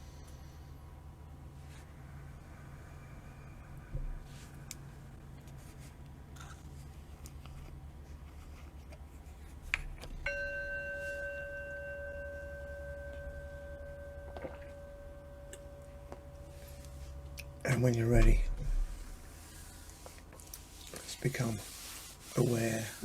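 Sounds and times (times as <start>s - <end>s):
singing bowl ringing: 10.2s - 19.3s.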